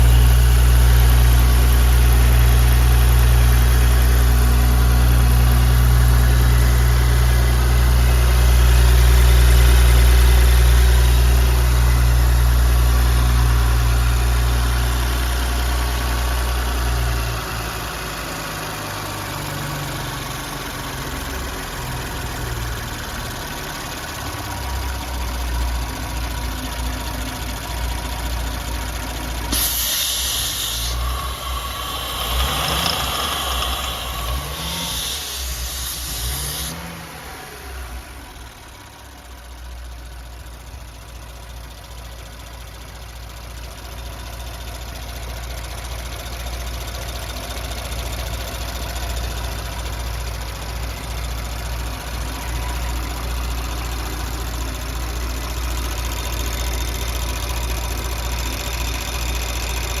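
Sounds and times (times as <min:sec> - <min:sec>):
car engine idling: 0:00.0 - 1:00.0
hiss: 0:29.5 - 0:37.1.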